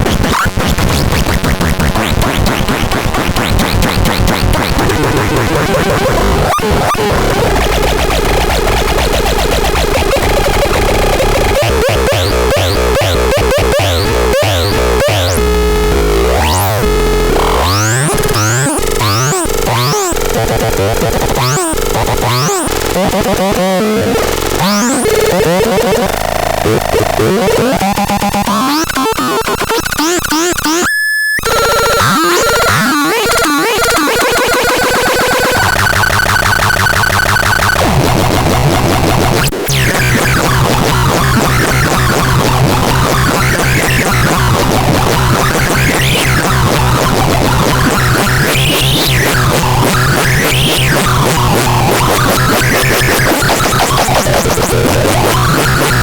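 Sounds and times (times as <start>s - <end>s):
electronic siren tones: 24.6s - 38.0s.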